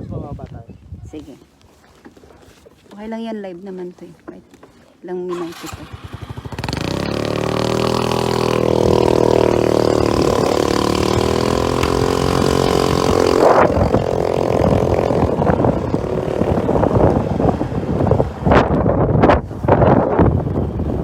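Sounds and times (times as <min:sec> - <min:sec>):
wind noise on microphone: 0:00.0 - 0:01.5, 0:05.4 - 0:21.0
scooter engine accelerating: 0:05.3 - 0:18.8.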